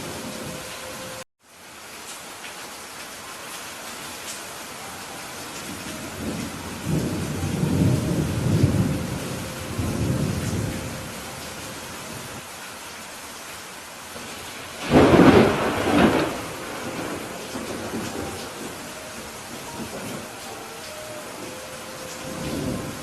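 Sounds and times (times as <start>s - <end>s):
steady rain falling: 0.0s - 23.0s
rolling thunder rumble: 5.7s - 12.4s, 14.3s - 20.5s, 21.3s - 23.0s
sharp thunderclap: 14.8s - 18.8s.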